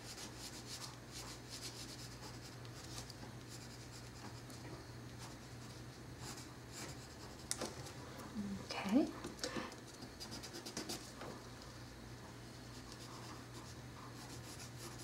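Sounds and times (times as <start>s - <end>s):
pencil scratching on paper: 0.0s - 4.5s, 5.2s - 7.5s, 9.9s - 11.1s, 12.7s - 15.0s.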